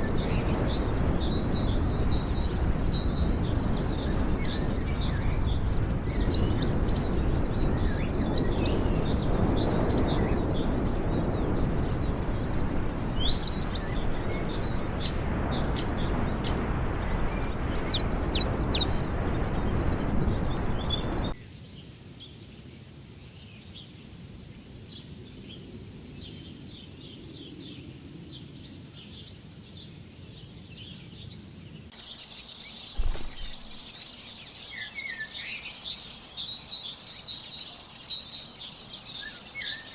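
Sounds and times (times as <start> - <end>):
loud steady rushing noise: 0.0 - 21.4
small birds chirping: 0.0 - 22.6, 23.3 - 39.9
thump: 33.0 - 33.9.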